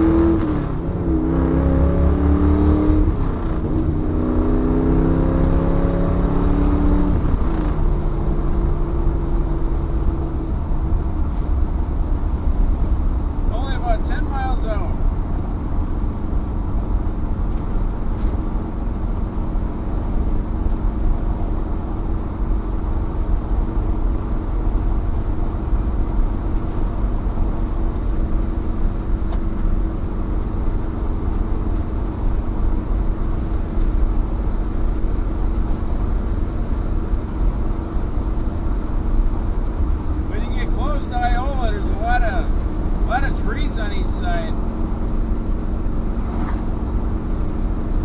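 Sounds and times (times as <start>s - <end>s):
car engine droning: 0.0s - 48.0s
tyre and road noise: 0.0s - 48.0s.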